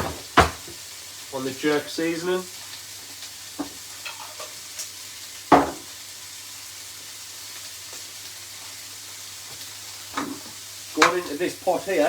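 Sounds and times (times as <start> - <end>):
loud knock: 0.0 - 0.7
fruit sizzling in a pan: 0.0 - 12.0.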